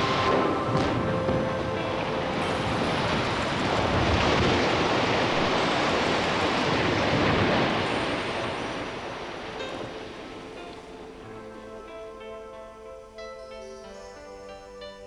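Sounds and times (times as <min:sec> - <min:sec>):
towers collapsing rush: 0:00.0 - 0:11.6.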